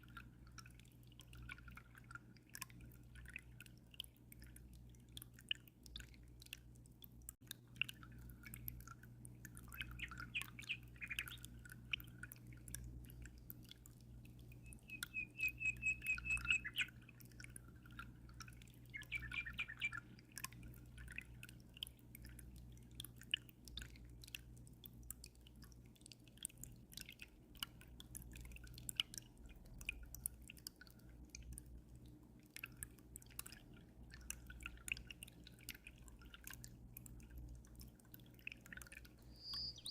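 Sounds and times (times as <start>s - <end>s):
water dripping and trickling: 0.0s - 39.9s
small bird chirping: 9.8s - 11.6s, 14.6s - 17.0s, 18.9s - 20.1s, 39.2s - 39.9s.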